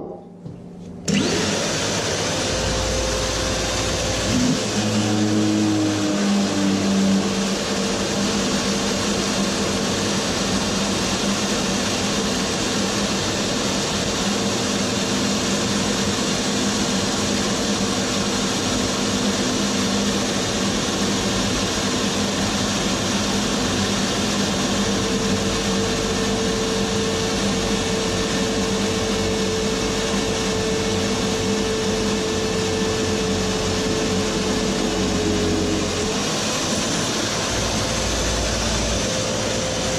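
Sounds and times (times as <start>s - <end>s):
machine tool motor hum: 1.0s - 11.2s, 18.4s - 39.9s.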